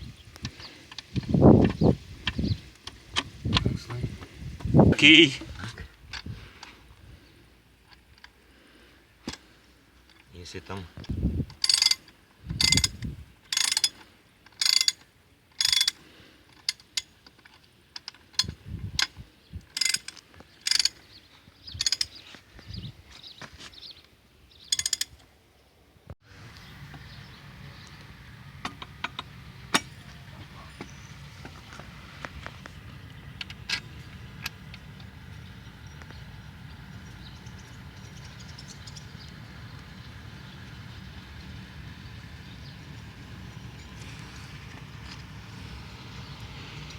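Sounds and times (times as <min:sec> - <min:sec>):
metal clicks: 0:11.0 - 0:21.1, 0:21.8 - 0:22.2, 0:24.7 - 0:25.3, 0:28.6 - 0:30.2
ratchet wrench clicking: 0:11.5 - 0:15.0, 0:15.6 - 0:16.0, 0:16.6 - 0:21.0, 0:21.8 - 0:22.2, 0:24.7 - 0:25.2
metal clinks of tools: 0:19.7 - 0:21.0, 0:21.8 - 0:22.2, 0:24.7 - 0:25.2, 0:29.1 - 0:30.9
tools knocking on engine parts: 0:28.6 - 0:31.6.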